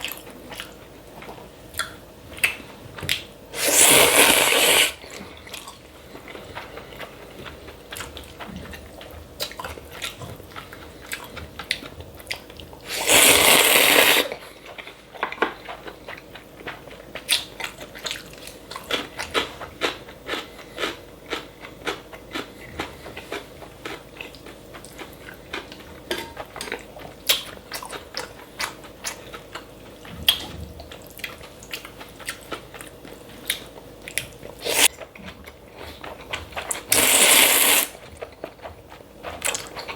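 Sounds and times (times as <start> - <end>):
crunchy chewing: 0.0 - 39.9
loud slurp: 3.6 - 5.0, 12.9 - 14.4, 34.6 - 34.9, 36.9 - 38.0.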